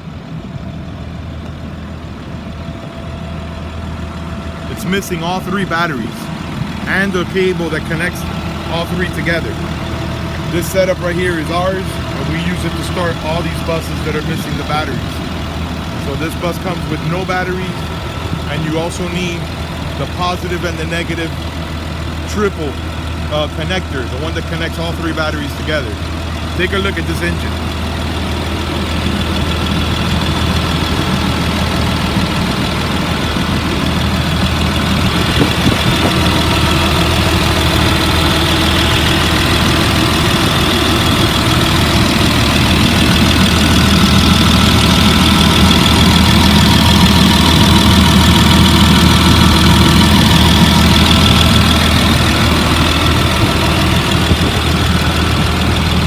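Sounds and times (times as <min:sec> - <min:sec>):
bus engine idling: 0:00.0 - 0:56.0.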